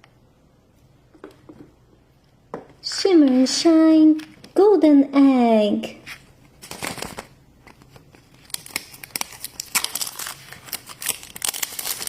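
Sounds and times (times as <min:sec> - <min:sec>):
wrapper crinkling and tearing: 0:06.6 - 0:12.0.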